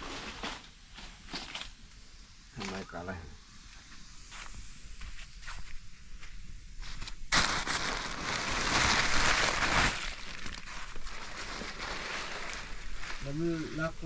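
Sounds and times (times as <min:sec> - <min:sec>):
loud rustling crunching: 0:06.8 - 0:14.0.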